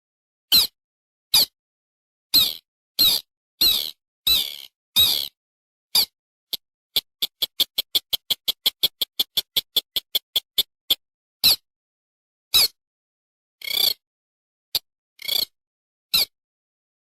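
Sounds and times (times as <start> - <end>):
bird calls sharp and high: 0.5 - 1.6, 2.3 - 11.7, 12.5 - 12.8, 13.6 - 14.0, 15.2 - 16.4.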